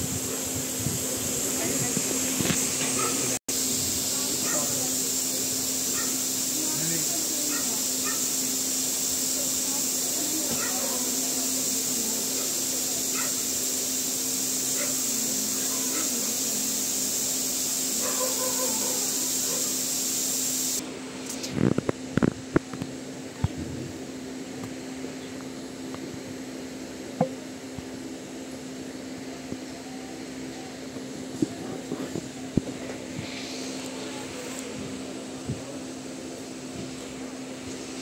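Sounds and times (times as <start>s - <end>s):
train hiss: 0.0s - 21.7s, 29.3s - 38.0s
low train hum: 0.0s - 38.0s.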